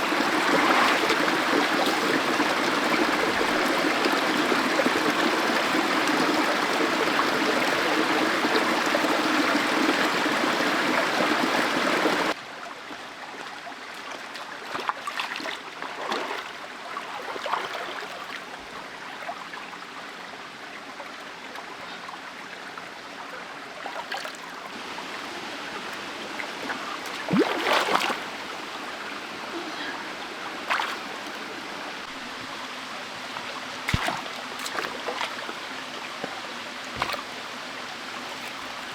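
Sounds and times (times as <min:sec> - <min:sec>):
stream water rushing: 0:00.0 - 0:12.4, 0:23.6 - 0:38.9
short knocks or splashes: 0:33.4 - 0:35.6, 0:37.0 - 0:37.3.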